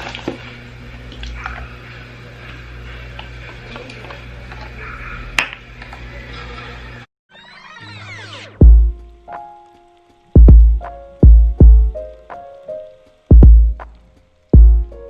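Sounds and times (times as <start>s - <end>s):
steady low hum: 10.4s - 12.3s.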